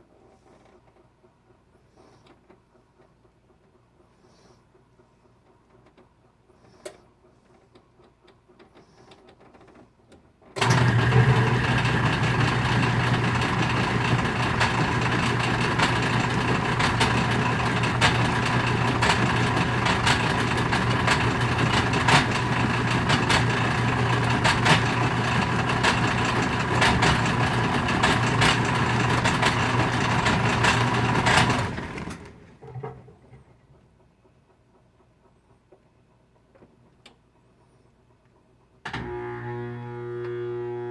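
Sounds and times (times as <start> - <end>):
washing machine motor humming: 10.6 - 33.7
irregular clacks and pops: 12.8 - 37.2.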